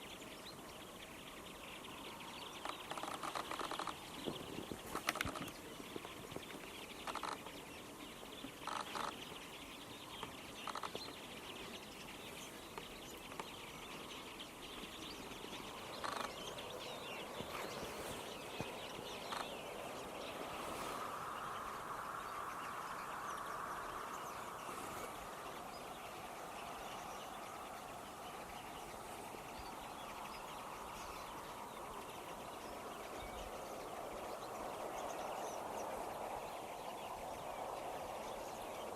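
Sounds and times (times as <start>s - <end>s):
flock of finches singing: 0.0s - 38.9s
sharp clicks: 4.9s - 5.6s.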